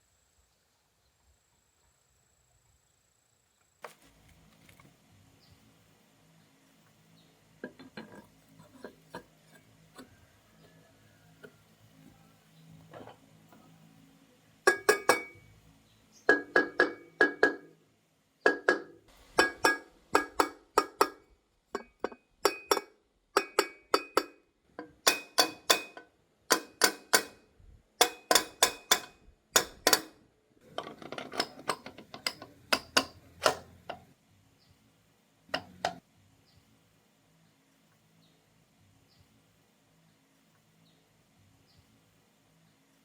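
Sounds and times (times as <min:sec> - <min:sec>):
metallic taps on engine part: 0:14.7 - 0:15.5, 0:16.3 - 0:17.7, 0:18.5 - 0:27.4, 0:28.0 - 0:30.2, 0:31.4 - 0:34.1.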